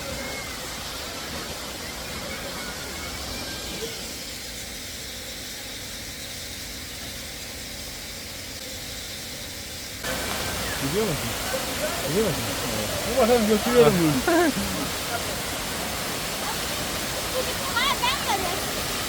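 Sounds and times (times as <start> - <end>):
waterfall rushing: 0.0 - 4.4, 10.0 - 19.0.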